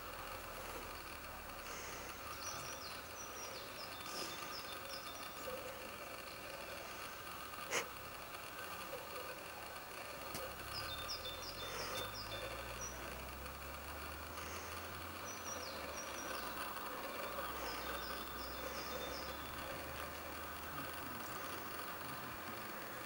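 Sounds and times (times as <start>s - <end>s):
songbird chirping: 0.0s - 7.5s, 8.5s - 23.0s.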